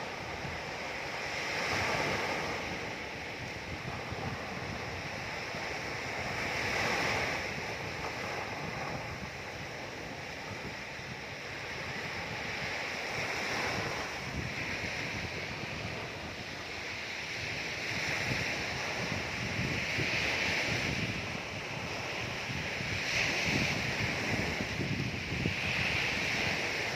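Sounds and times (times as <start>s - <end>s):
ocean waves breaking: 0.0s - 26.9s.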